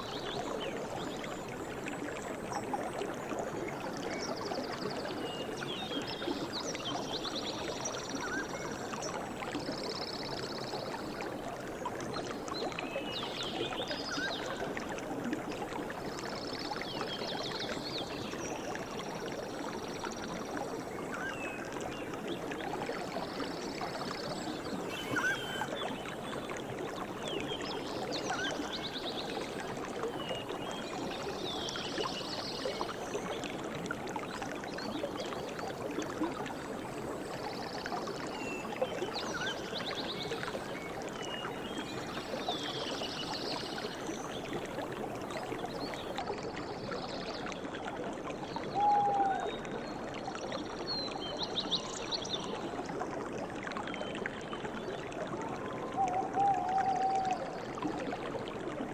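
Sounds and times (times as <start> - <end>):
stream water running: 0.0 - 58.9
birds chirping and trilling: 24.9 - 25.8.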